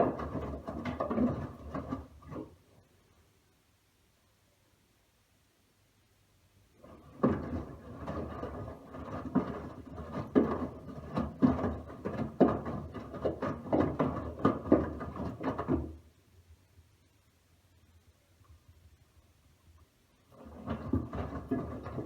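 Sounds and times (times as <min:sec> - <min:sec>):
washing machine drum tumbling laundry: 0:00.0 - 0:02.6, 0:06.8 - 0:16.0, 0:20.3 - 0:22.0.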